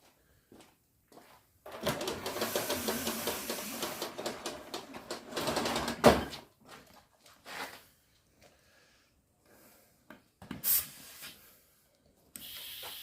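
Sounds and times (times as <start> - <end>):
compressed air hissing: 2.4 - 4.1, 10.6 - 11.6, 12.4 - 13.0.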